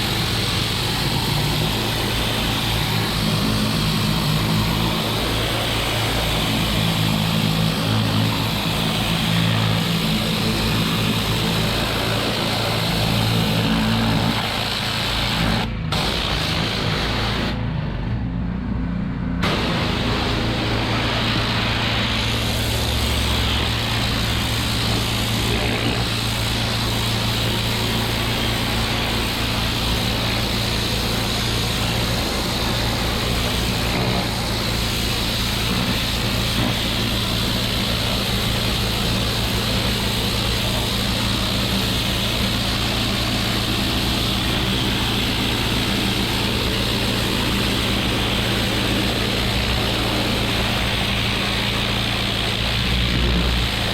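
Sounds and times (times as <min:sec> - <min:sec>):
water jet spraying: 0:00.0 - 0:17.6, 0:19.4 - 0:53.9
pressure washer engine running: 0:00.0 - 0:17.8, 0:19.4 - 0:53.9.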